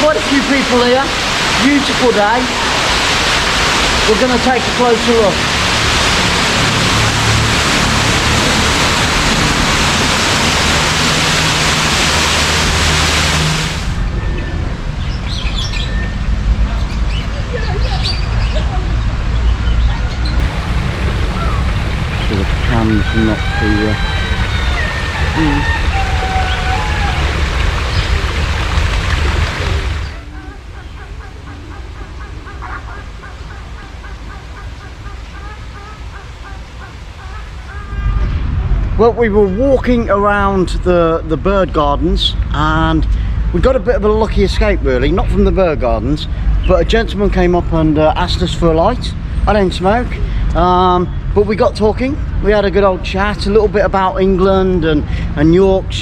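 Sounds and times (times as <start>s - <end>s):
waterfall rushing: 0.0s - 14.2s, 20.4s - 38.5s
low rumble: 5.3s - 35.4s, 36.4s - 49.6s
small birds chirping: 21.2s - 38.2s.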